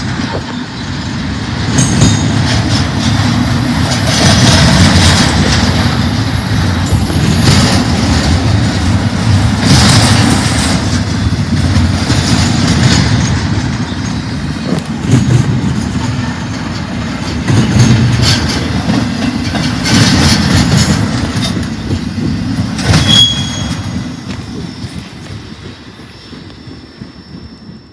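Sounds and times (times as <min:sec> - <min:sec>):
freight train rumbling past: 0:00.0 - 0:27.9.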